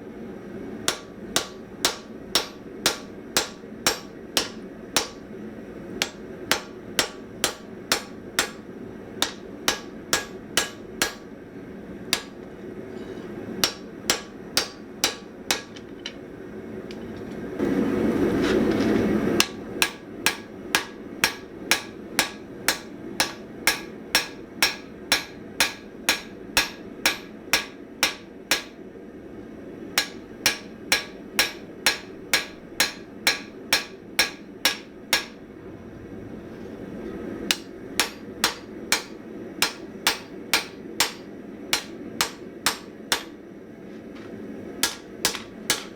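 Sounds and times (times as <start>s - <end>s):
hammer striking steel on anvil: 0.9s - 5.3s, 6.0s - 11.3s, 12.1s - 16.2s, 19.4s - 28.8s, 30.0s - 35.4s, 37.5s - 43.4s, 44.8s - 45.9s
loud rushing noise: 35.4s - 37.0s.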